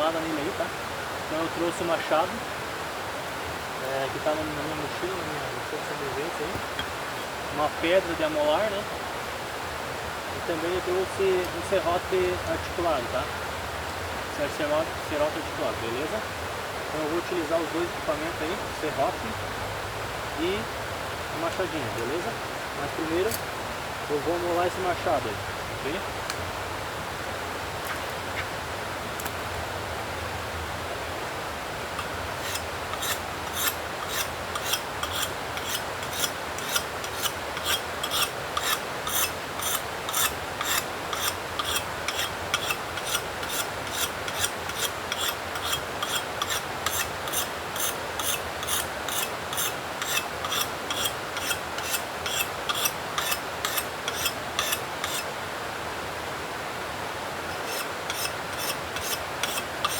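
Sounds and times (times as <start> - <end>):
axe sharpened on whetstone: 32.0 - 55.3, 57.5 - 59.9.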